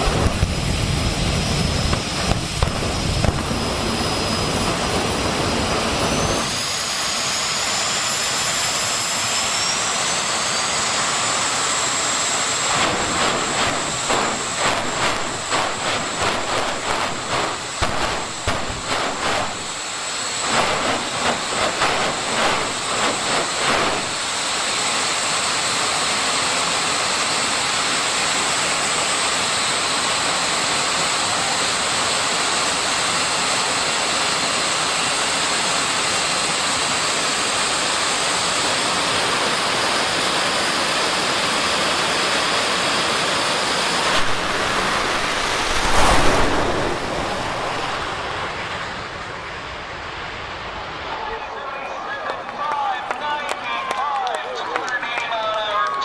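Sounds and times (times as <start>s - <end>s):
jet engine roar and whine: 0.0s - 56.0s.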